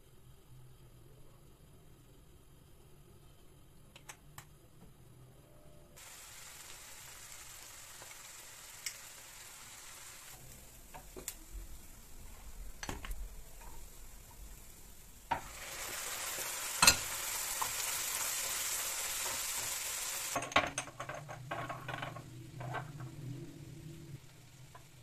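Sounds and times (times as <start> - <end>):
food sizzling in a pan: 6.0 - 21.7, 22.8 - 25.0.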